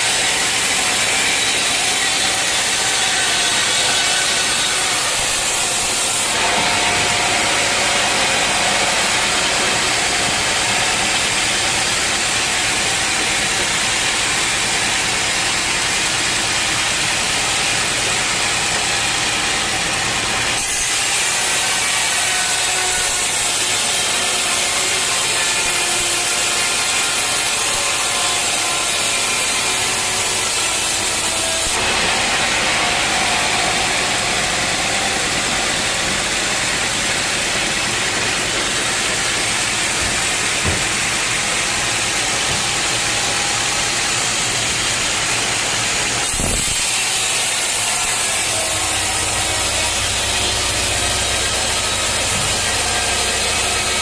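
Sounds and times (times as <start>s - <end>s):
saw blade cutting log: 0.0s - 54.0s.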